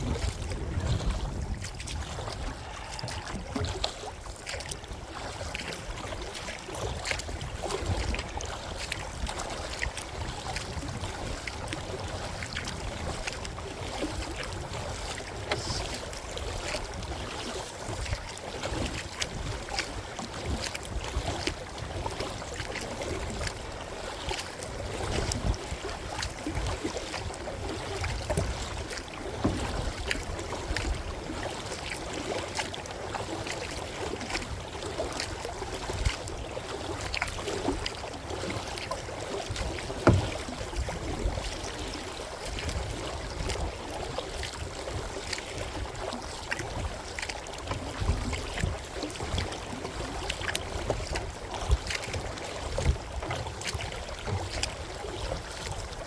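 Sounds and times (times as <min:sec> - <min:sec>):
wind on microphone: 0:00.0 - 0:04.1
paddle splashing in water: 0:00.0 - 0:56.0
water trickling off paddle: 0:00.0 - 0:56.0.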